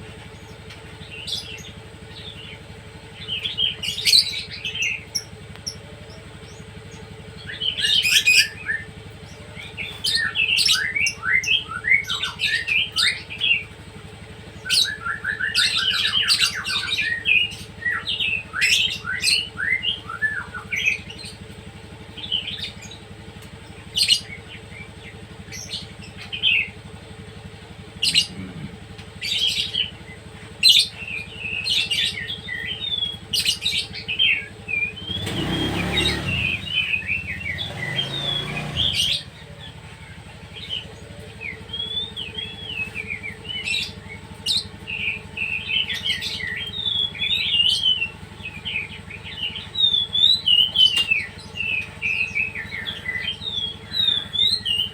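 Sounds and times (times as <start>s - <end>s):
songbirds chirping and whistling: 0.0s - 54.9s
vehicle passing: 34.8s - 54.9s.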